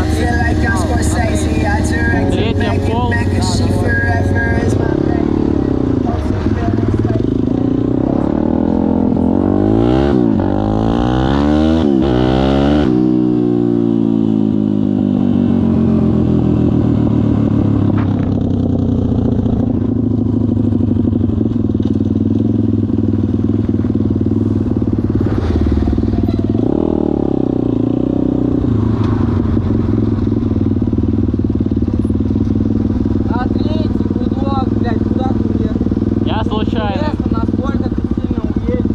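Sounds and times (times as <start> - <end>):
pit bike engine revving: 0.0 - 14.7, 24.8 - 38.9.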